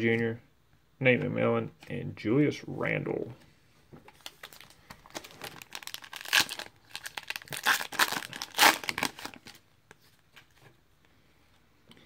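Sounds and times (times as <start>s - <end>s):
foil wrapper tearing and crinkling: 4.2s - 9.6s.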